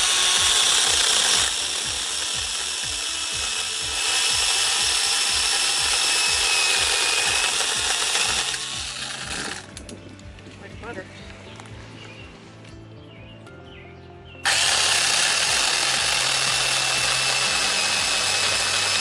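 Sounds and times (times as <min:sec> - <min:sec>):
mini chainsaw cutting branches: 0:00.0 - 0:09.8, 0:14.4 - 0:19.0.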